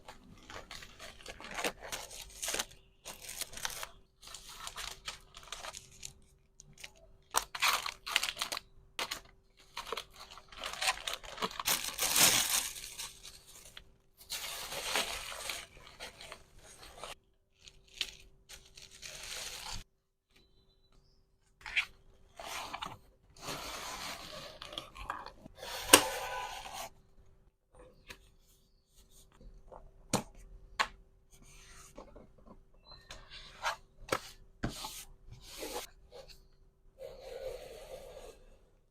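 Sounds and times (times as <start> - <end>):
plastic packaging crinkling: 0.2 - 19.9.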